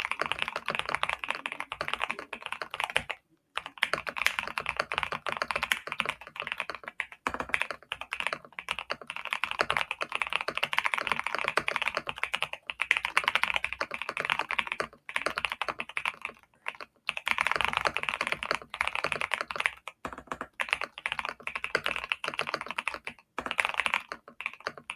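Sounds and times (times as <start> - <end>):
mechanical keyboard typing: 0.0 - 24.9.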